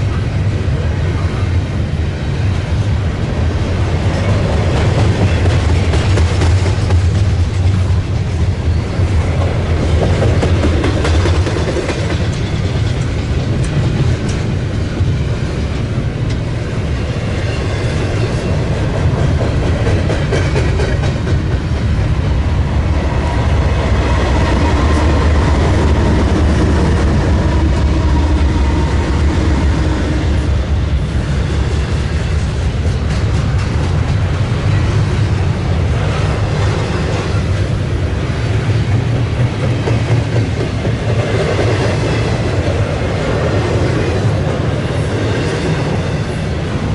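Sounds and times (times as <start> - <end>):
freight train rumbling past: 0.0 - 46.9
steel wheels clicking over rail joints: 4.1 - 16.6, 17.4 - 21.9, 31.6 - 37.8.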